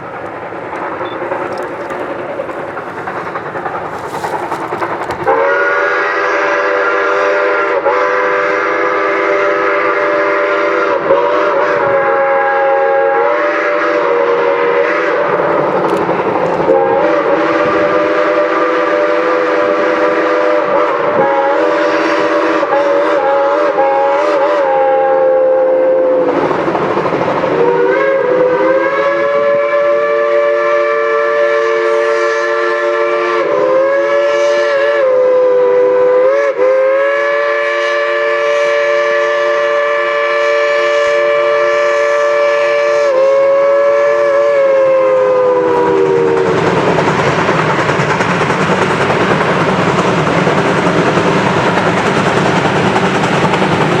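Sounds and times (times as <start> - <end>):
locomotive and train running: 0.0 - 54.0
steam whistle blowing: 3.9 - 26.4, 27.6 - 46.7.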